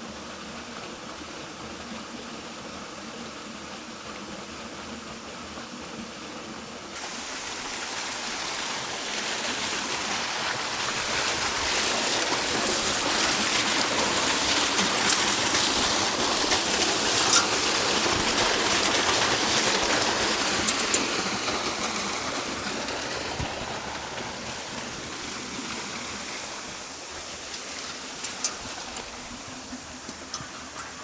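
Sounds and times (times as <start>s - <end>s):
rushing water: 0.0s - 31.0s.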